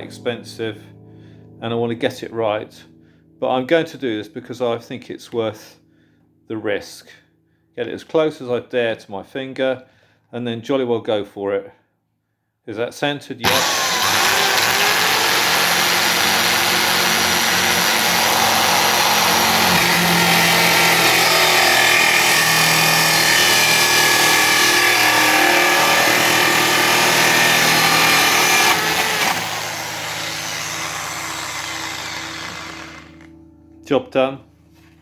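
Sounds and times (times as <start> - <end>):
electric drill cutting wood: 13.4 - 33.3.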